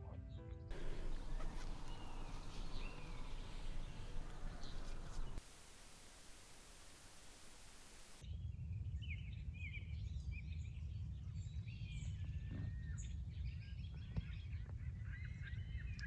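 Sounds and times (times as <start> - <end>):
birds chirping and whistling: 0.7 - 5.4
steady low rumble: 0.7 - 8.2.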